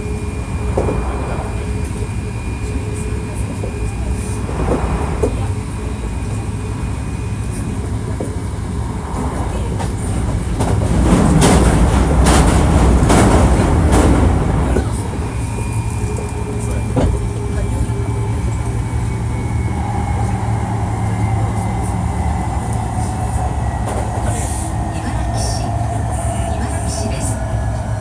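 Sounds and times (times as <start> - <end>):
train wheels rumbling on rail: 0.0 - 28.0
wheels clattering over rail joints: 8.2 - 18.6.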